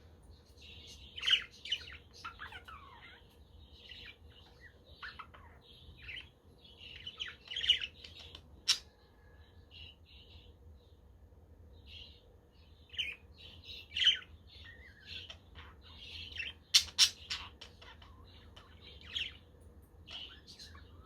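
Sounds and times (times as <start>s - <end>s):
budgerigars chirping: 0.7s - 8.9s, 13.0s - 19.5s, 20.1s - 21.0s.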